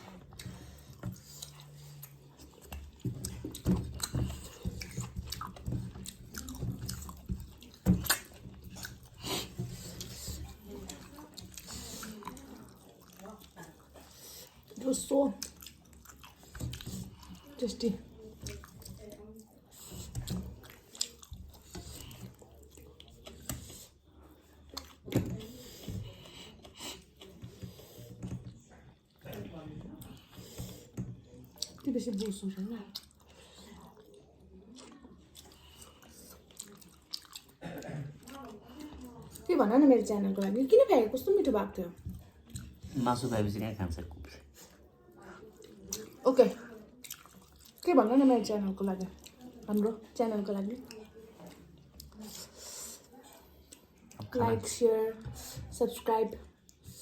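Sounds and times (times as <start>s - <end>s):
close chewing with mouth smacks: 0.0s - 57.0s
wet mouth squishing: 1.4s - 10.3s, 34.7s - 37.6s, 47.0s - 47.9s.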